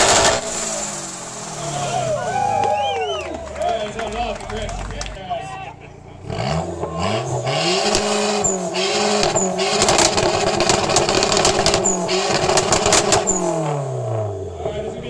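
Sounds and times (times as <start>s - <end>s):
car engine revving hard: 0.0s - 3.2s, 6.2s - 15.0s
exhaust crackling pops: 9.2s - 13.6s.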